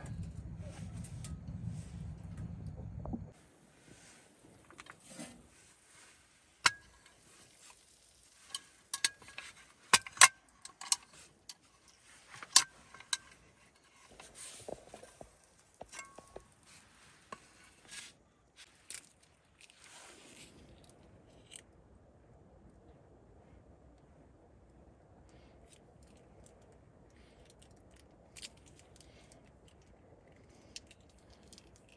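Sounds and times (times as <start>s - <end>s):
rustling: 10.7s - 21.6s.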